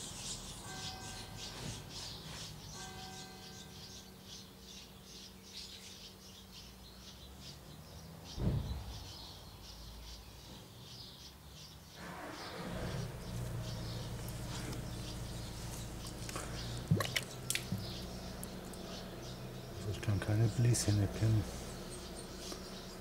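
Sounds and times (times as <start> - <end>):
birds chirping: 0.0 - 23.0
dull low thump: 8.4 - 9.0.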